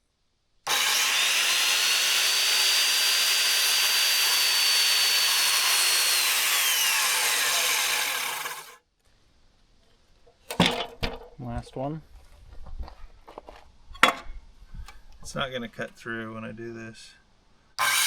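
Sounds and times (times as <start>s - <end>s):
circular saw cutting wood: 0.7s - 8.8s, 17.8s - 18.0s.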